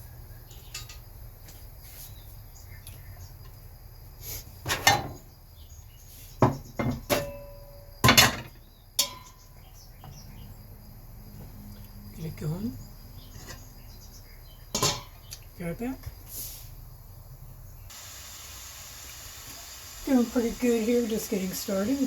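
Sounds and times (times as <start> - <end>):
cookware clattering: 4.7 - 5.2, 6.5 - 9.5, 14.7 - 15.3.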